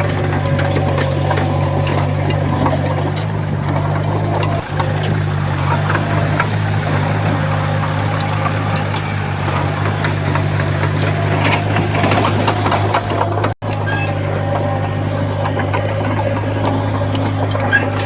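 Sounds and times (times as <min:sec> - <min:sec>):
clacks and rattles: 0:00.0 - 0:18.0
diesel engine running: 0:00.0 - 0:18.0.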